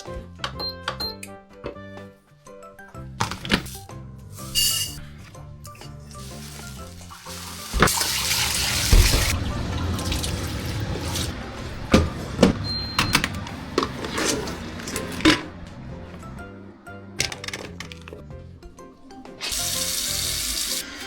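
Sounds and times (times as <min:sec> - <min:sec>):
tap running into sink: 0:07.0 - 0:11.3.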